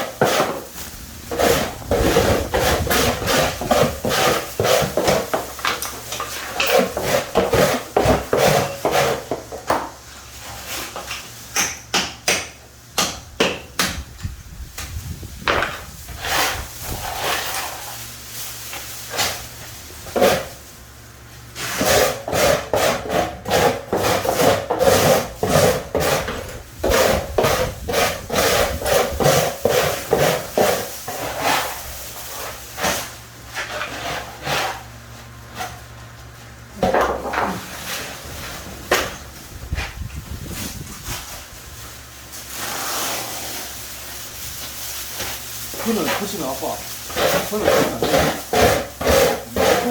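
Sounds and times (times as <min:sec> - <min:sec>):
hand tool scraping hard surface: 0:00.0 - 0:09.8, 0:15.4 - 0:18.0, 0:19.0 - 0:20.7, 0:21.5 - 0:41.4, 0:42.4 - 0:49.9.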